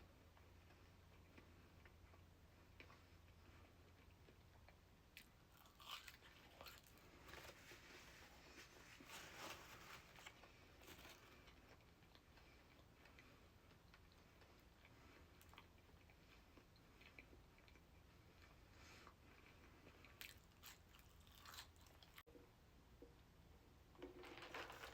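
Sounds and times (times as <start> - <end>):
soft crunchy bites: 2.8 - 7.9, 9.0 - 22.2.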